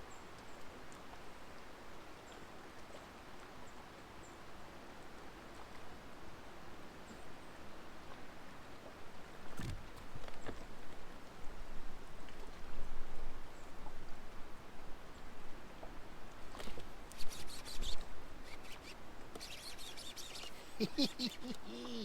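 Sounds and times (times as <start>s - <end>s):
rapid high clicking: 17.1s - 21.7s.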